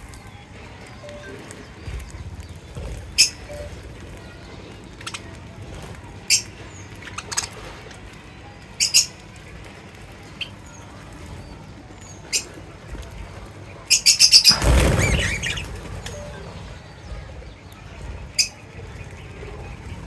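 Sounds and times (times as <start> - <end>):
birds chirping: 0.0 - 20.0
loud rustling: 14.4 - 20.0.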